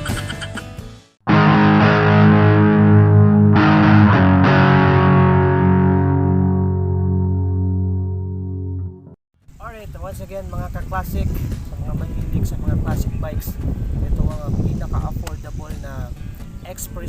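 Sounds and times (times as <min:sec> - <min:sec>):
distorted electric guitar chord: 0:01.3 - 0:09.2.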